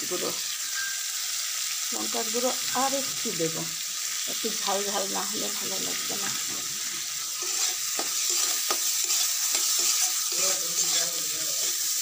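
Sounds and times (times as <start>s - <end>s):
vegetables sizzling in oil: 0.0s - 12.0s
spatula scraping a pan: 5.9s - 12.0s.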